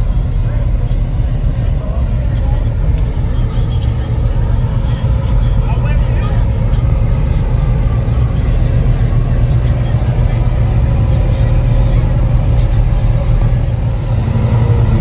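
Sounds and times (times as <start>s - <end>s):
car engine exhaust rumble: 0.0s - 15.0s.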